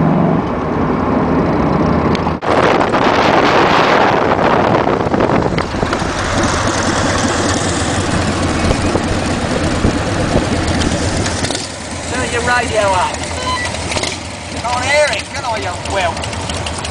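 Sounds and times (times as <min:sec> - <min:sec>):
wind noise: 0:00.4 - 0:11.7
motorcycle engine running: 0:02.4 - 0:16.9.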